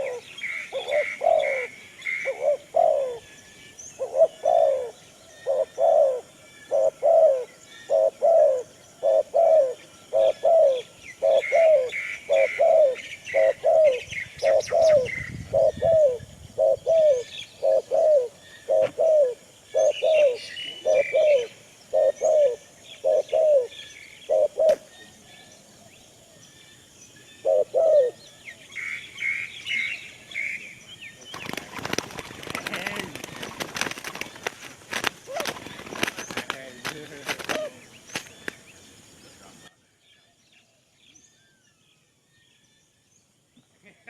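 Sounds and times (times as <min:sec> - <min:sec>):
dove cooing: 0:00.0 - 0:03.3, 0:04.0 - 0:24.9, 0:27.4 - 0:28.4, 0:31.3 - 0:38.5
small birds chirping: 0:00.0 - 0:43.9.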